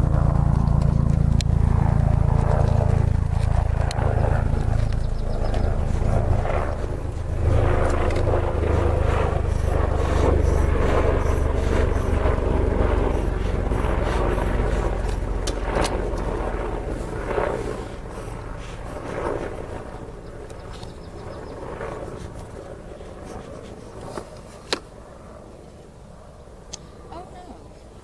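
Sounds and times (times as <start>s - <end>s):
bees buzzing: 1.0s - 20.5s.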